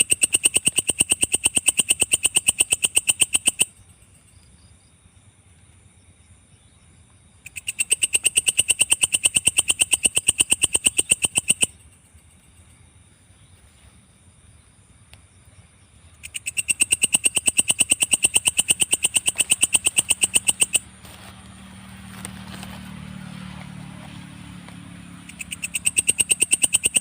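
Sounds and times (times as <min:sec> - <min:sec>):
low hum: 0:10.8 - 0:27.0
katydid shrill pulsing: 0:16.2 - 0:21.3, 0:25.2 - 0:27.0.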